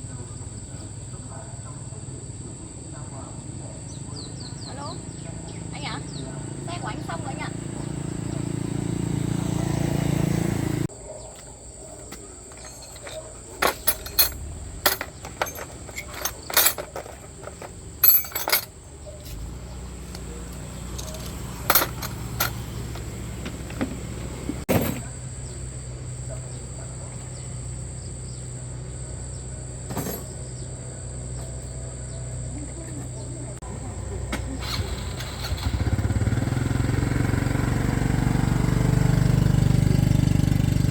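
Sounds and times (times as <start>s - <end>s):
sharp clicks and clinks: 12.5s - 18.8s, 20.9s - 23.1s
motor running: 19.3s - 24.7s, 33.2s - 40.9s.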